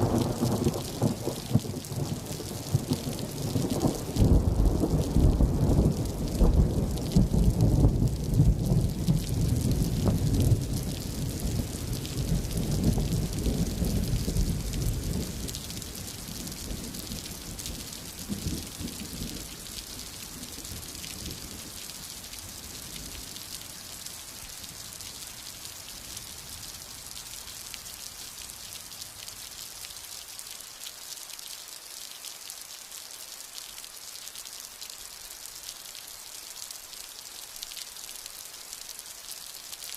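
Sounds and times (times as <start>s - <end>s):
thunder rumbling: 0.0s - 21.7s
steady rain hissing: 0.0s - 39.9s.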